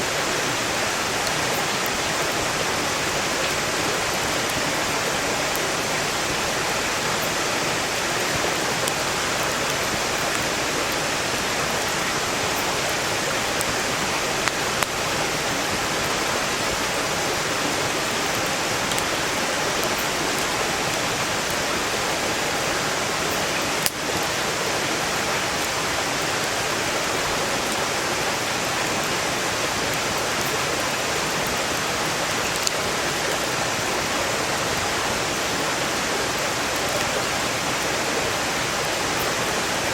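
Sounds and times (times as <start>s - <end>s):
stream rushing: 0.0s - 39.9s
campfire popping: 8.1s - 21.7s, 23.3s - 24.6s.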